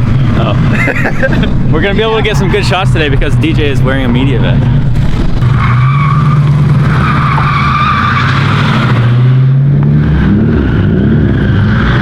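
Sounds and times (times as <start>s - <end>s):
car engine at high revs: 0.0s - 12.0s
tyres squealing: 1.4s - 8.8s.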